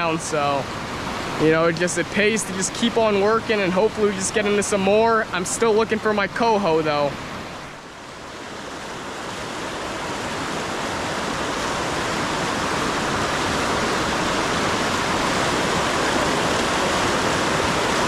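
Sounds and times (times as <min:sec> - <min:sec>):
rushing river water: 0:00.0 - 0:18.0.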